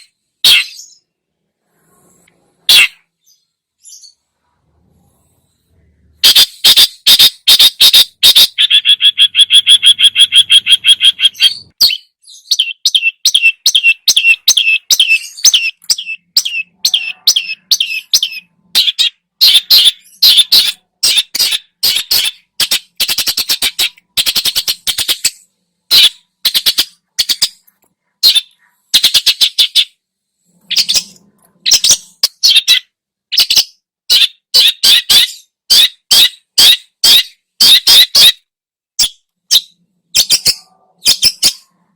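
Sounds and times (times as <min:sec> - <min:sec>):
fast dense bird trill: 0:06.1 - 0:27.6.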